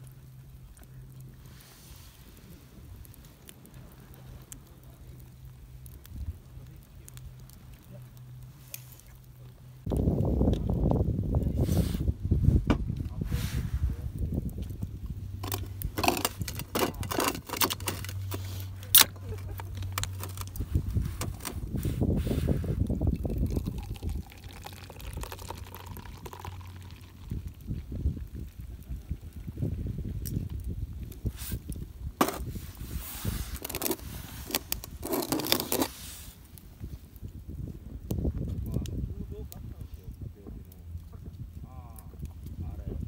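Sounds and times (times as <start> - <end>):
low rumble: 0.0 - 35.1, 36.9 - 43.0
small hard objects clinking: 15.3 - 21.5, 33.5 - 35.9
scraping and rustling: 15.3 - 22.8, 32.2 - 36.5.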